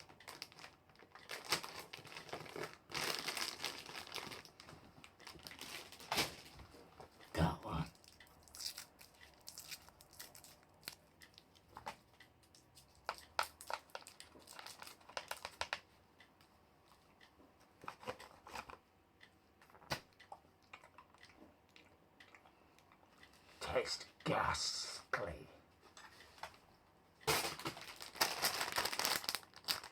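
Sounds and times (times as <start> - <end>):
wrapper crinkling and tearing: 0.0 - 6.6, 8.5 - 11.0, 13.1 - 15.8, 27.3 - 29.9
chewing: 18.0 - 23.3.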